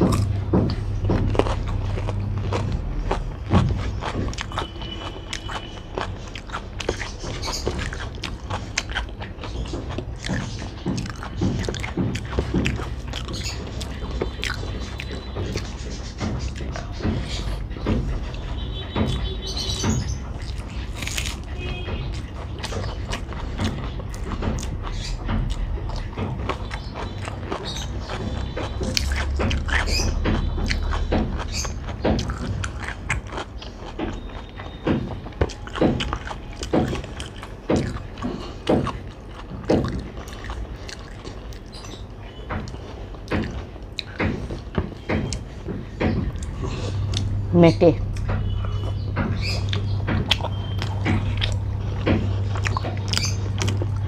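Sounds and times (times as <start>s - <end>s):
wet chewing and crunching: 0.0s - 54.0s.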